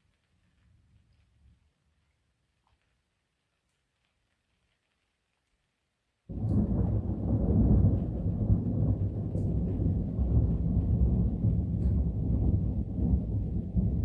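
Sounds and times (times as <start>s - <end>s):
thunder rumbling: 6.3s - 14.0s.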